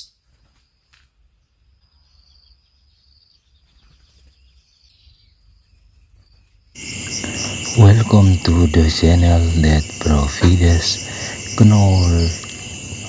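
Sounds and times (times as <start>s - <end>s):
high insect trill: 6.8s - 13.0s.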